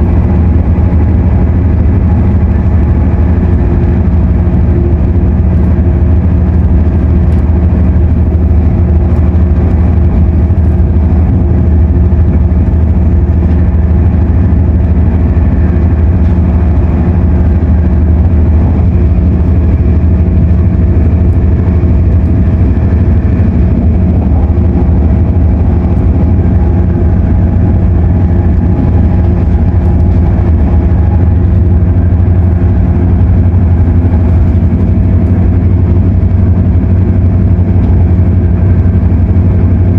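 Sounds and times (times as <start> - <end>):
noisy air conditioning: 0.0 - 39.9
train rolling noise: 0.0 - 39.9.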